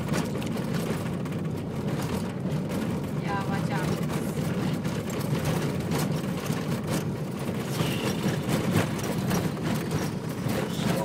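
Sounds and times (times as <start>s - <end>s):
engine and tyre rumble: 0.0s - 11.0s
knocks and rattles over bumps: 0.0s - 11.0s.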